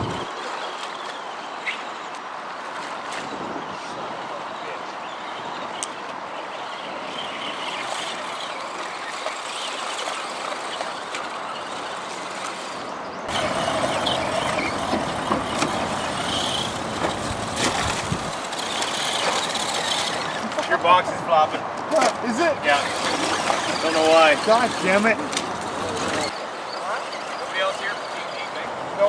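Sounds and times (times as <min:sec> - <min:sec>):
river water rushing: 0:06.4 - 0:21.0
electric motors whining: 0:07.1 - 0:20.6.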